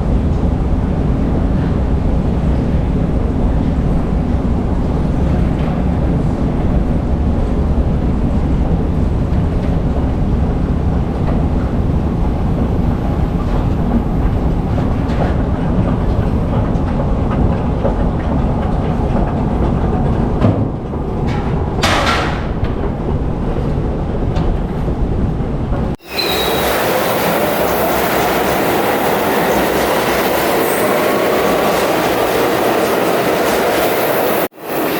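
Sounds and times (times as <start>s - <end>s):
subway train rumbling: 0.0s - 34.9s
wheels clickety-clack: 8.6s - 24.8s, 26.1s - 34.9s.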